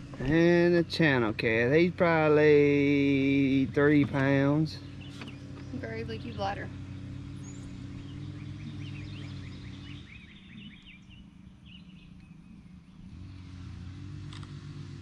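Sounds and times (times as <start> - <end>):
steady low drone: 0.0 - 15.0
bird chirping: 2.9 - 13.8.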